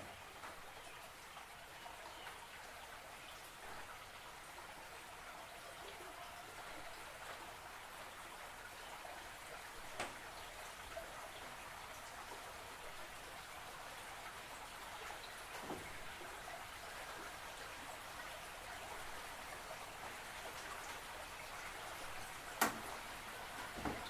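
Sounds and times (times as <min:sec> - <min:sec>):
faint water trickling and dripping: 0:00.0 - 0:24.0.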